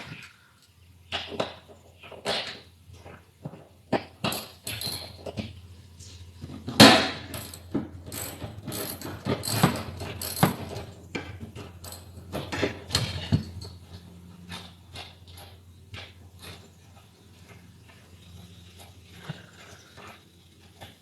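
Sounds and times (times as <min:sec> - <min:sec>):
hand tools clicking on metal: 0:06.2 - 0:21.0.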